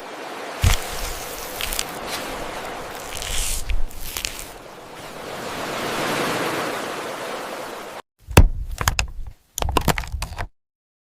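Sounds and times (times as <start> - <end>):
water rushing: 0.0 - 8.0
sharp clicks and knocks: 8.3 - 10.5.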